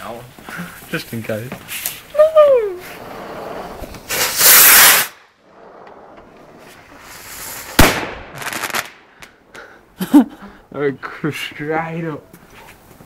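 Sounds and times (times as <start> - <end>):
firework crackle: 1.7 - 9.2
firework rocket hissing whoosh: 2.8 - 5.9, 6.6 - 9.0
firework bang: 3.0 - 9.1.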